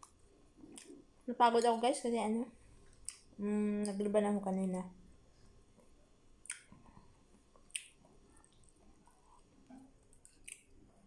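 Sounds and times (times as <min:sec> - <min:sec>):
quiet chewing: 0:00.0 - 0:01.1, 0:02.8 - 0:04.0, 0:05.7 - 0:11.0
wet mouth clicks: 0:00.7 - 0:01.0, 0:02.9 - 0:04.0, 0:06.4 - 0:06.8, 0:07.5 - 0:08.8, 0:10.1 - 0:10.8.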